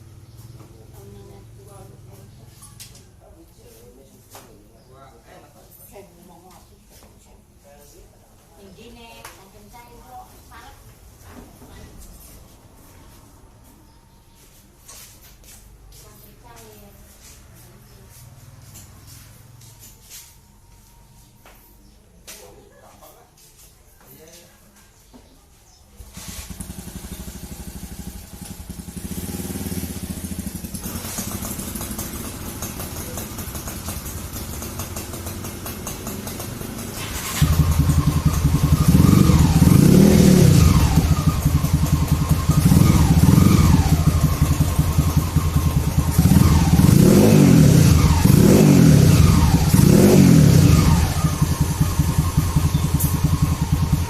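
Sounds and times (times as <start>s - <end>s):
motorcycle engine idling and revving: 0.0s - 4.7s, 15.3s - 21.6s, 25.9s - 54.0s.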